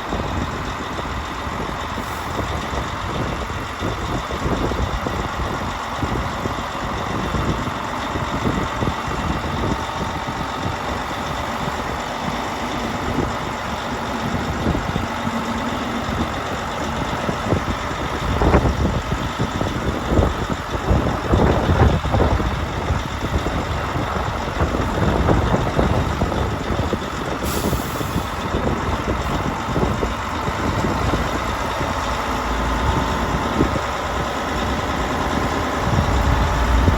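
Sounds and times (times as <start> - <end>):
heavy diesel engines running: 0.0 - 36.9
air hiss: 27.4 - 28.4.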